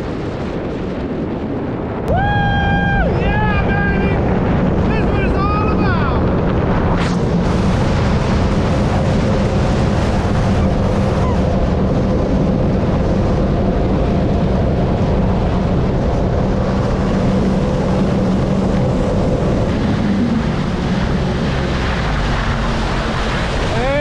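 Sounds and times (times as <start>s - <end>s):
wind noise on microphone: 0.0s - 24.0s
jet ski engine running: 2.2s - 24.0s
rushing water: 7.1s - 24.0s.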